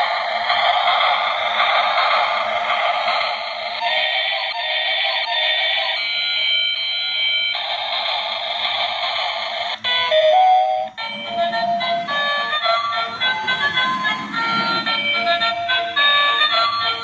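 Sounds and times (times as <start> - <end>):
toy train electronic tune: 0.0 - 17.0.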